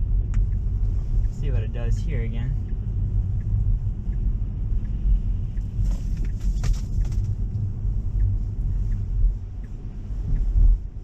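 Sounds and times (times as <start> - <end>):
tyre rumble on wet road: 5.7 - 7.7.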